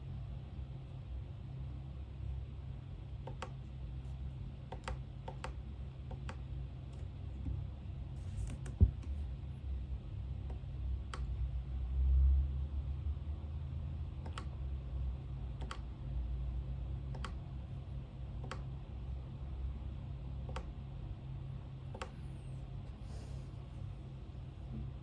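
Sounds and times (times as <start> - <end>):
steady low hum: 0.0 - 25.0
computer keyboard key presses: 3.2 - 3.6, 4.7 - 6.4, 14.2 - 14.6, 15.5 - 15.9, 17.1 - 17.4, 18.4 - 18.7, 20.4 - 20.7.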